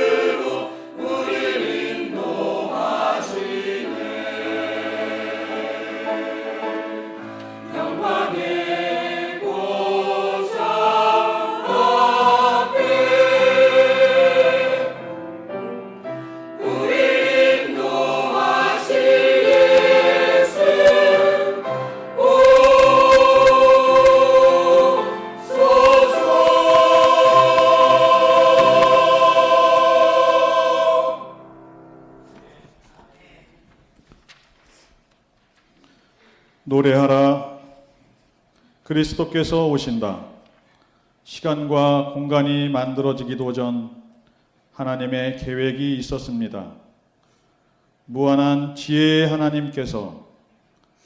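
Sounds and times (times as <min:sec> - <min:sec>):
church choir singing in harmony: 0:00.0 - 0:32.8.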